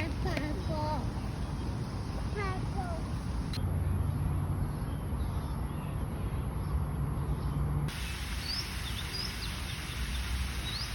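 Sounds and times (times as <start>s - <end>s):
high rising bird chirps: 8.3s - 10.9s.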